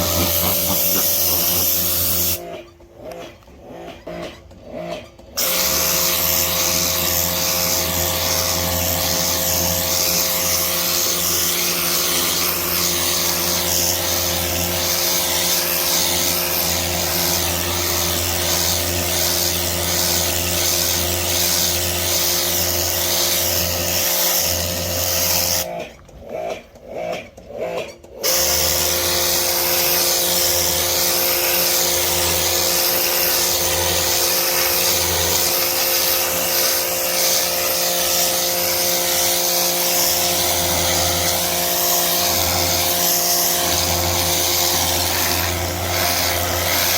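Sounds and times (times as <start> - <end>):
hissing water spray: 0.0 - 2.4, 5.4 - 25.7, 28.2 - 46.9
pressure washer motor hum: 0.0 - 3.6, 5.4 - 26.1, 28.1 - 46.9.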